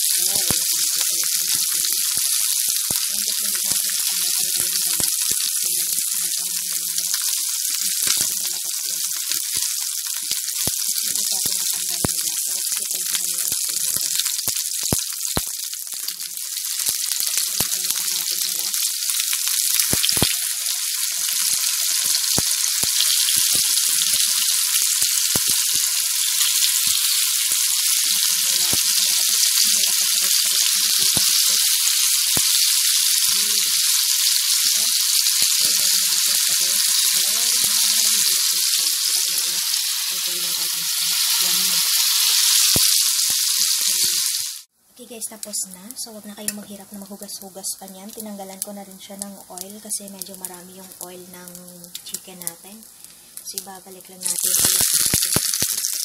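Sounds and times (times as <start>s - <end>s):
chicken frying in hot oil: 0.0s - 44.7s, 48.1s - 56.0s.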